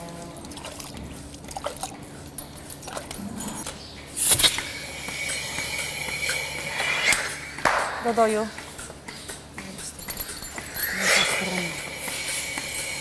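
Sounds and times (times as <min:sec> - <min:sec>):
sharp hiss of air: 0:04.2 - 0:07.6
high whistling hiss: 0:04.2 - 0:07.7, 0:10.6 - 0:13.0.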